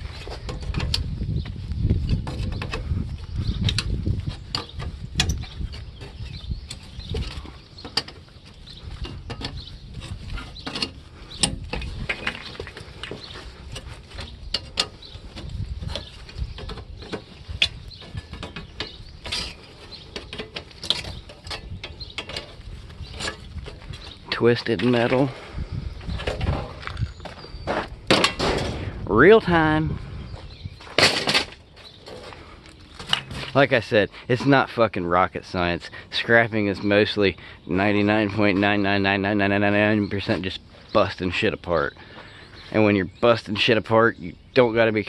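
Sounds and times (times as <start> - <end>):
metal crinkling and creaking: 0.0 - 35.6.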